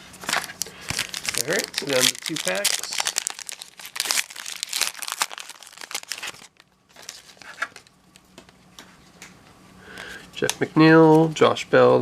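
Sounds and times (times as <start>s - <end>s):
card pack wrapper crinkling: 0.2s - 7.9s.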